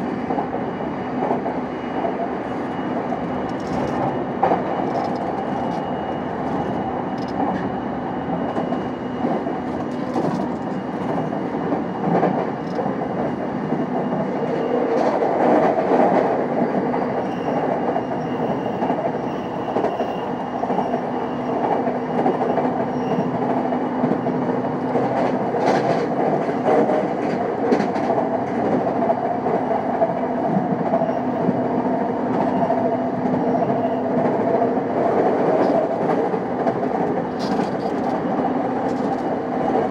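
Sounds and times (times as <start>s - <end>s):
train wheels rolling on rail: 0.0s - 39.9s.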